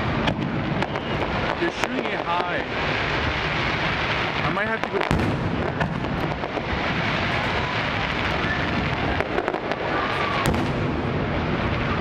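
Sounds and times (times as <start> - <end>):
fireworks crackling and popping: 0.0 - 12.0
sharp firework bang: 4.1 - 7.5, 9.0 - 12.0.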